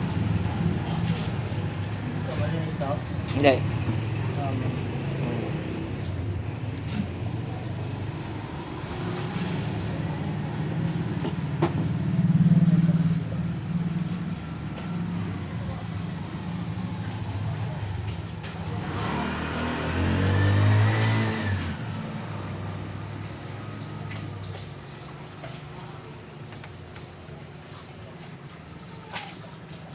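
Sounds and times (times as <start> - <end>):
scooter engine revving: 18.6 - 23.2.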